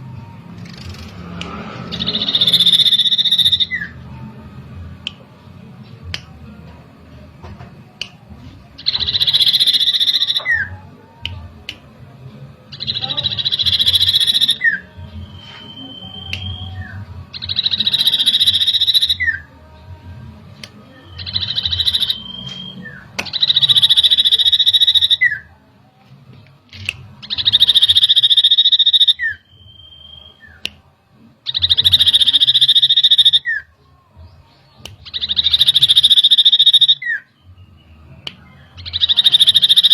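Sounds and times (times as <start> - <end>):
bird buzzy trill: 0.5 - 4.1, 8.8 - 10.8, 12.7 - 19.5, 21.0 - 25.4, 27.2 - 30.6, 31.4 - 33.6, 35.0 - 37.2, 38.8 - 39.9
clear bird whistle: 2.0 - 4.0, 8.9 - 10.7, 13.3 - 19.4, 21.0 - 25.4, 27.2 - 30.6, 35.0 - 39.9.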